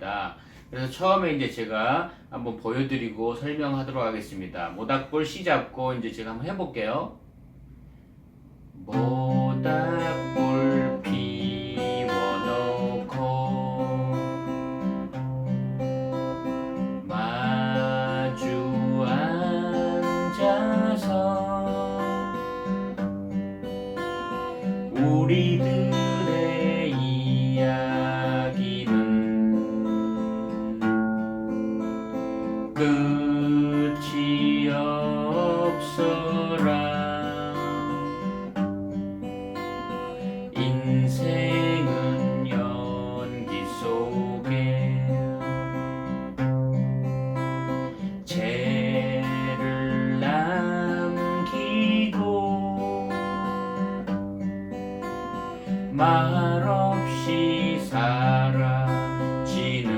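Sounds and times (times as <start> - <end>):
fingerpicked acoustic guitar: 7.7 - 59.9
person singing: 8.9 - 14.8, 17.0 - 22.4, 24.9 - 30.9, 32.8 - 38.3, 40.5 - 45.8, 48.3 - 53.7, 55.9 - 59.9.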